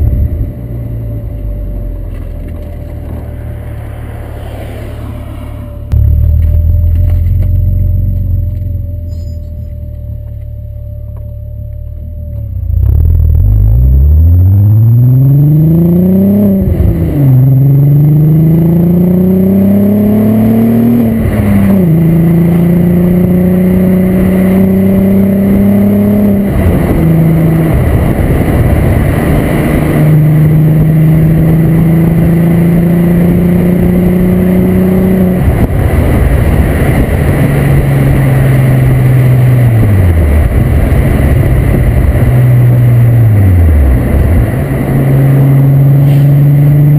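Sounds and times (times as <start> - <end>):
car engine accelerating hard: 0.0 - 9.1, 9.8 - 46.9.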